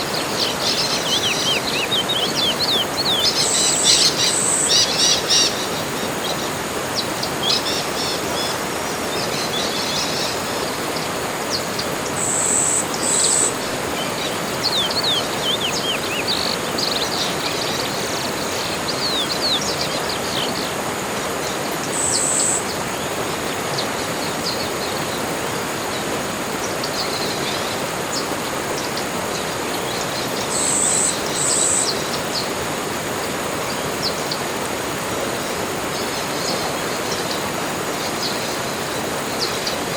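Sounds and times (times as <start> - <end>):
birds chirping and calling: 0.2 - 10.6, 11.6 - 20.8.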